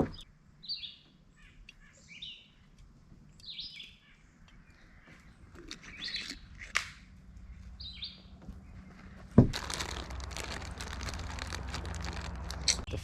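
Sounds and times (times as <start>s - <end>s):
birds chirping: 0.0s - 9.8s.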